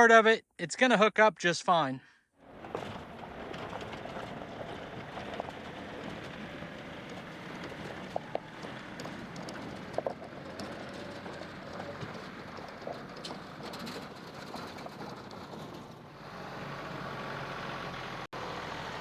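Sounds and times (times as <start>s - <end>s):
tractor running baler: 2.4s - 19.0s.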